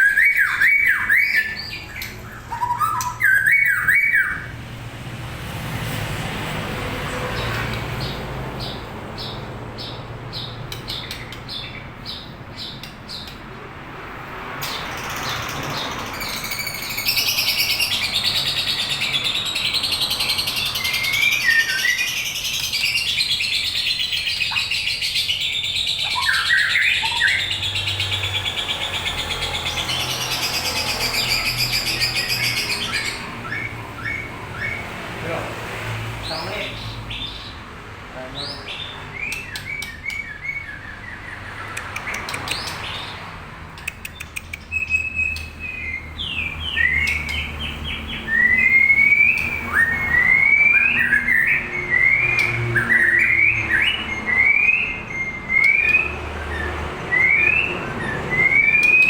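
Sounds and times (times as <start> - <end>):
songbird singing: 0.0 - 4.7, 6.8 - 59.0.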